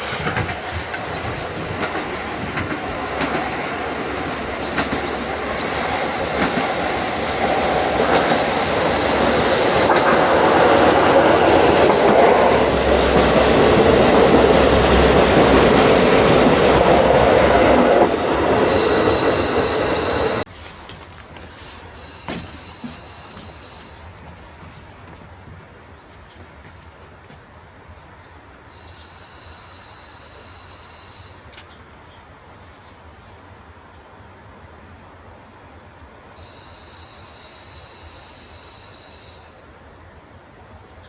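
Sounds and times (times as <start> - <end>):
diesel train engine running: 0.0 - 25.8
train wheels clattering over rails: 0.0 - 27.5.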